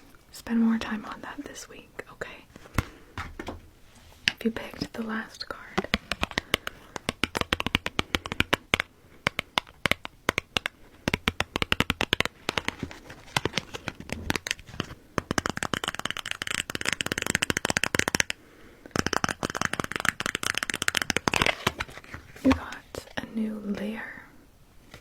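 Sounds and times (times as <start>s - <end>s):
cards being shuffled: 5.7s - 23.2s.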